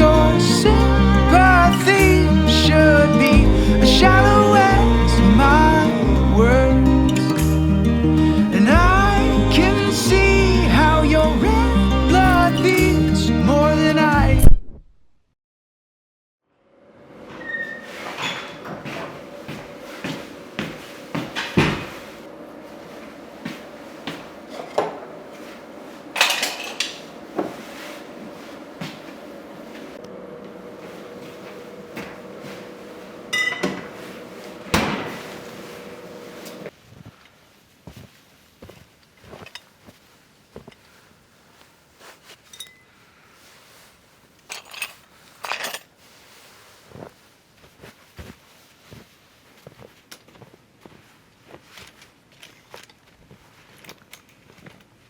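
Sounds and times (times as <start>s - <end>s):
dishes and utensils clinking: 26.2s - 27.1s, 33.3s - 34.0s
dishes clinking and knocking: 33.4s - 33.9s.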